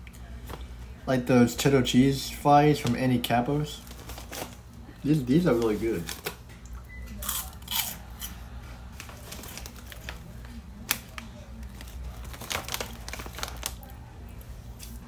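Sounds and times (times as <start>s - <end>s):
cheese puffs crunching: 3.2s - 6.4s, 7.1s - 15.0s.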